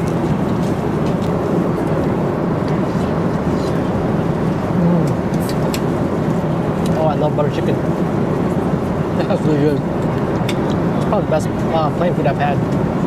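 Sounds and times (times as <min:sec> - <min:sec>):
airliner cabin drone: 0:00.0 - 0:13.0.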